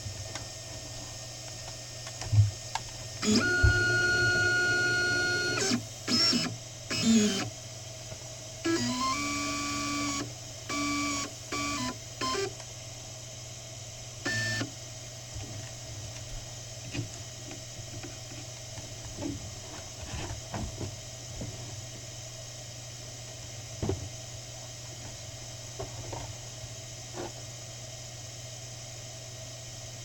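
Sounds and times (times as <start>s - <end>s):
steady machine hum: 0.0s - 30.0s
stepper motors whining: 3.2s - 7.5s, 8.7s - 12.5s, 14.3s - 14.7s.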